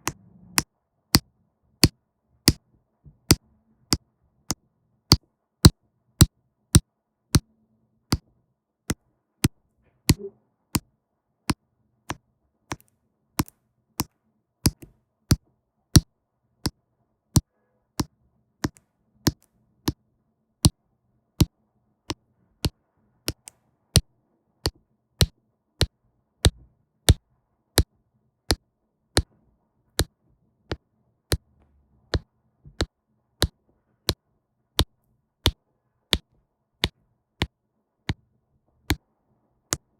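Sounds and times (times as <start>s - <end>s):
pen tapping ticks: 11.5s - 15.4s, 17.4s - 20.0s.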